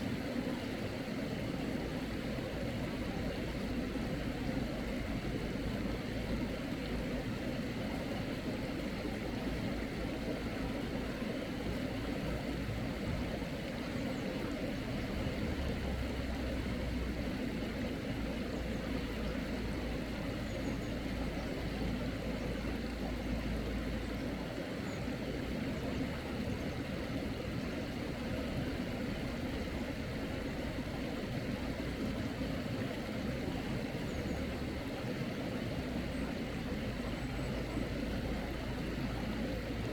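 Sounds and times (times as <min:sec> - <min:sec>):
mountain stream rushing: 0:14.7 - 0:39.9.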